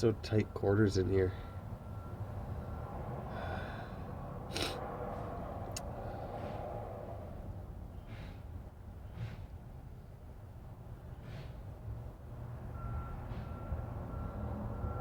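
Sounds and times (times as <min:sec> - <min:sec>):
soft breaths: 0:03.3 - 0:04.9.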